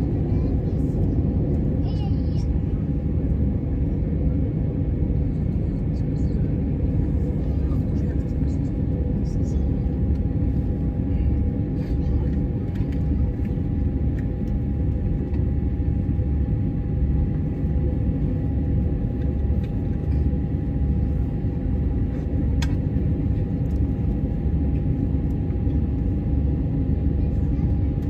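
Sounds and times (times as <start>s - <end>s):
low machinery rumble: 0.0s - 28.0s.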